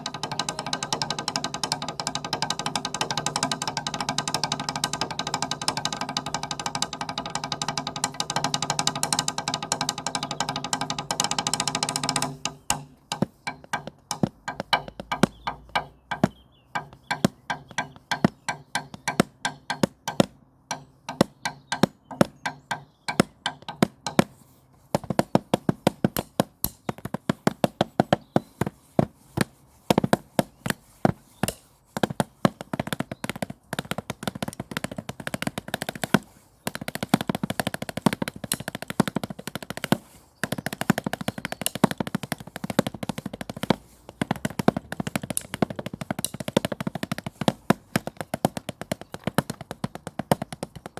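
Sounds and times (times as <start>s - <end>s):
drumsticks clicking: 0.0s - 24.4s, 37.1s - 48.7s.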